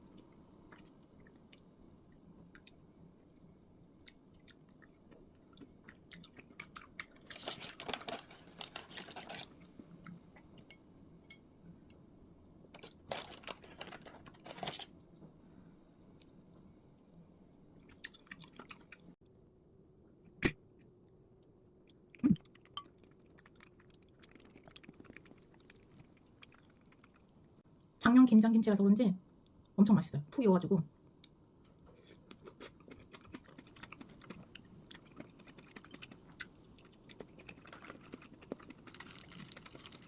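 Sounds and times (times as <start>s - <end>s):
chewing crisp food: 0.1s - 10.7s, 17.8s - 19.4s, 20.6s - 27.6s, 31.2s - 40.0s.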